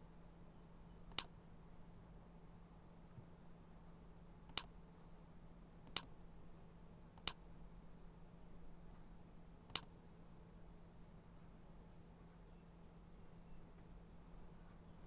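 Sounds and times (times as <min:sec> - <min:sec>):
faint steady hum: 0:00.0 - 0:15.0
computer mouse clicks: 0:01.1 - 0:01.3, 0:04.5 - 0:04.7, 0:05.8 - 0:06.1, 0:07.2 - 0:07.4, 0:09.7 - 0:09.9.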